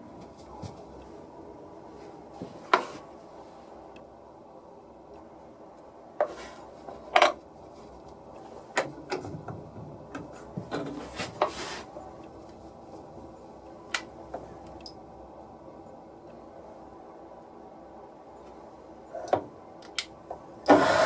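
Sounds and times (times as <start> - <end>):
scrapes and rubs on workbench: 11.0 - 11.9.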